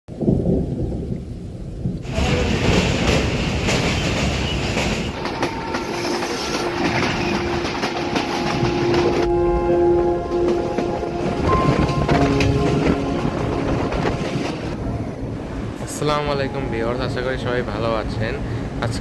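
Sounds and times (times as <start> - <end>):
train wheels clacking on rails: 2.0 - 9.4, 10.0 - 14.8.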